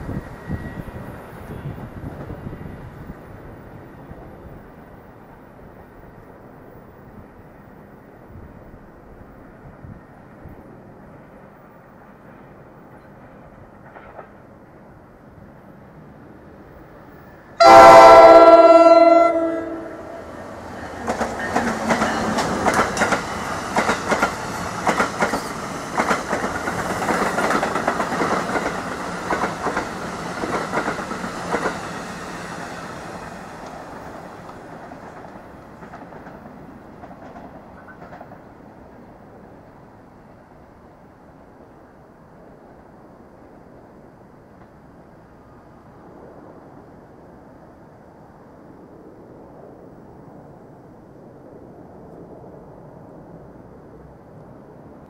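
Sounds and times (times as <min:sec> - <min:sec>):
train horn blast: 0:17.6 - 0:20.4
wheels clicking over rail joints: 0:20.8 - 0:38.6.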